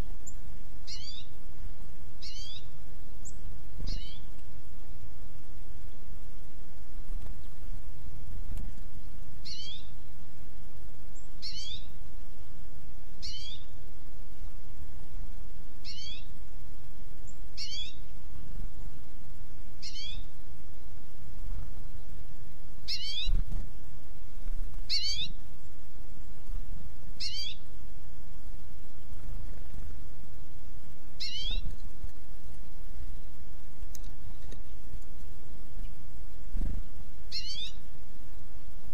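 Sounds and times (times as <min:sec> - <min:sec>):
low outdoor rumble: 0:00.0 - 0:38.9
bird mewing call: 0:22.9 - 0:23.5, 0:24.9 - 0:25.4, 0:27.2 - 0:27.6, 0:31.2 - 0:31.8, 0:37.3 - 0:37.8.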